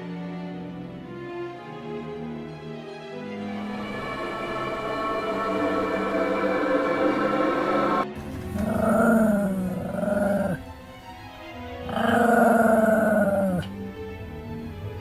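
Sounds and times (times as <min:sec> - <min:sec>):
music: 0:00.0 - 0:15.0
growling animal calls: 0:08.2 - 0:11.0, 0:11.6 - 0:15.0.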